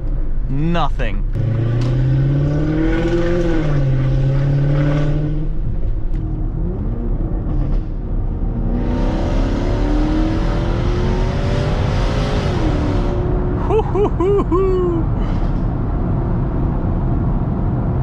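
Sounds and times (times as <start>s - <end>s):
car engine under load: 0.0s - 14.2s.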